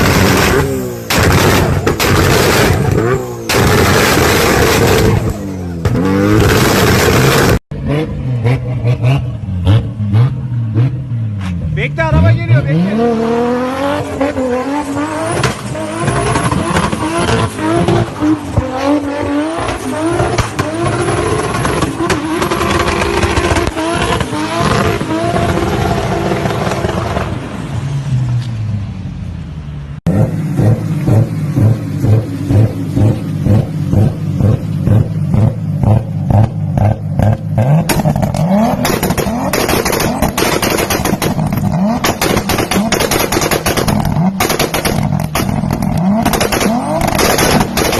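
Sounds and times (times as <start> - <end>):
loud exhaust bangs: 0.0 - 7.6, 30.1 - 47.9
exhaust crackling and popping: 0.0 - 7.7, 15.3 - 27.4, 30.6 - 47.9
car engine revving: 0.0 - 28.3, 29.6 - 47.9.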